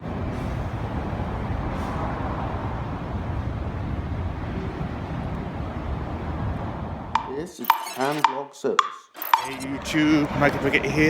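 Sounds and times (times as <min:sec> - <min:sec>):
wind buffeting microphone: 0:00.0 - 0:07.2.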